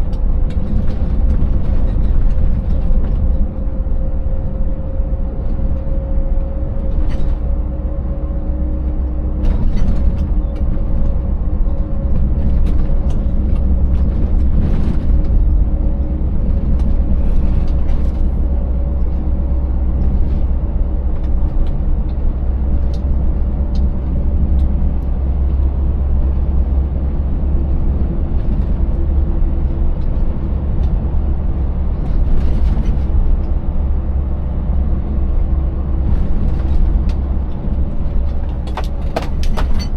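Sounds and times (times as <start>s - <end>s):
road rumble: 0.0s - 39.9s
truck engine running: 0.0s - 39.9s
knocks and rattles: 38.3s - 39.9s.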